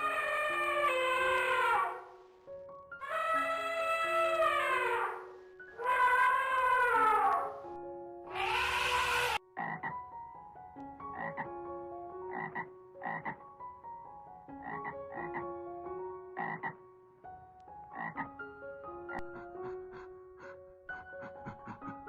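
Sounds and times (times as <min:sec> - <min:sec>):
light plucked background music: 0:00.0 - 0:22.0
frog croaking: 0:08.3 - 0:10.0, 0:11.1 - 0:11.5, 0:12.3 - 0:13.4, 0:14.6 - 0:15.5, 0:16.4 - 0:16.8, 0:17.9 - 0:18.4.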